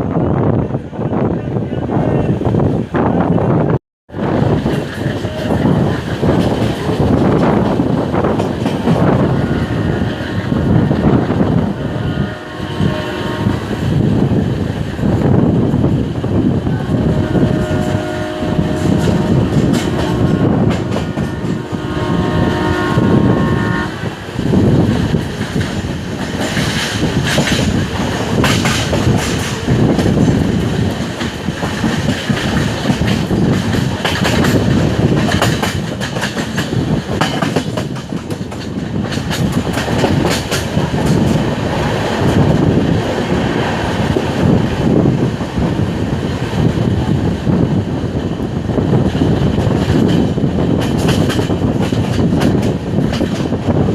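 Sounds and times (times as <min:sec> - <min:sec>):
train rumbling at speed: 0:00.0 - 0:53.9
locomotive horn blast: 0:09.0 - 0:13.8, 0:16.7 - 0:24.2.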